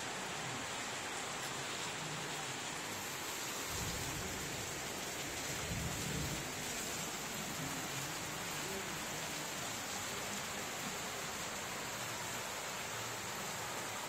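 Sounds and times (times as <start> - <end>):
heavy rain falling: 0.0 - 14.0.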